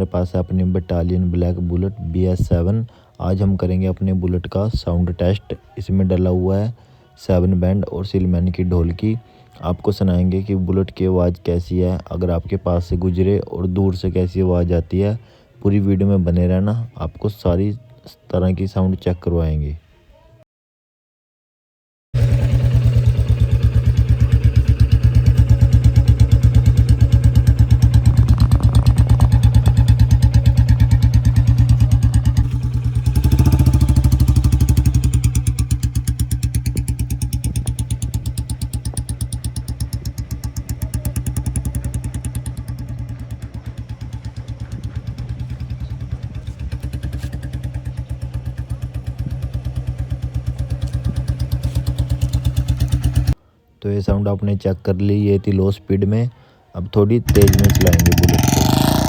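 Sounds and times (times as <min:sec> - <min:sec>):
motorcycle engine thumping: 0:22.2 - 0:53.4, 0:57.3 - 0:59.0.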